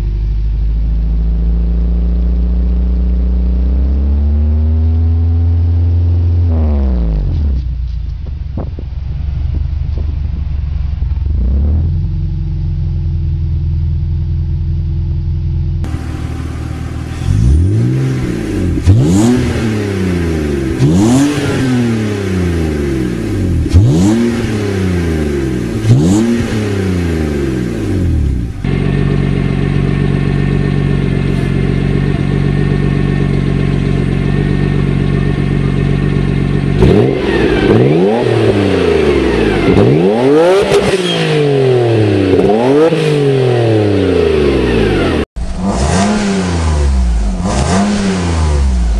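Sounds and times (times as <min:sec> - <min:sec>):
car exhaust idling: 0:00.0 - 0:03.8, 0:07.2 - 0:40.8
car engine revving: 0:00.6 - 0:14.6, 0:15.8 - 0:48.9.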